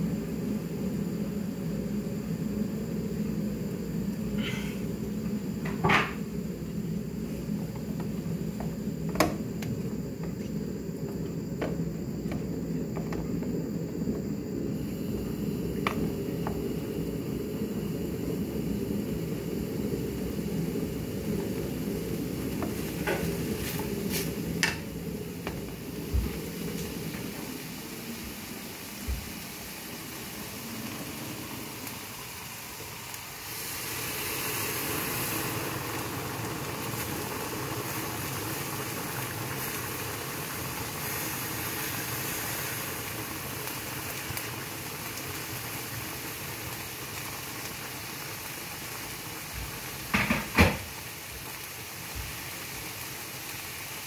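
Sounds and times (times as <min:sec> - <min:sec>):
water pouring hiss: 0:00.0 - 0:54.0
meat sizzling in a pan: 0:14.7 - 0:54.0.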